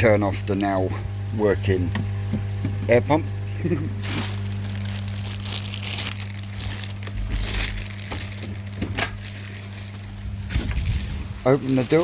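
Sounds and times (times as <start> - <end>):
pond pump humming: 0.0 - 12.0
crunching and clicking handling noises: 3.8 - 12.0
loud crackle: 4.0 - 9.9.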